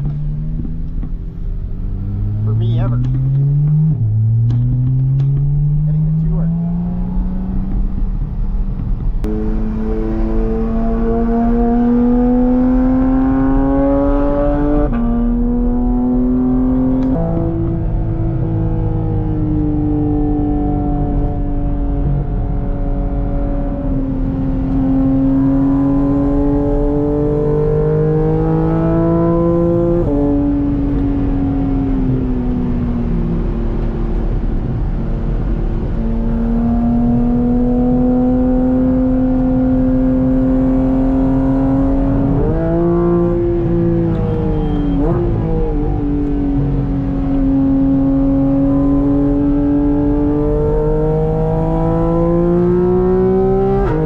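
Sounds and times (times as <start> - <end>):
sports car engine revving: 0.0 - 54.0.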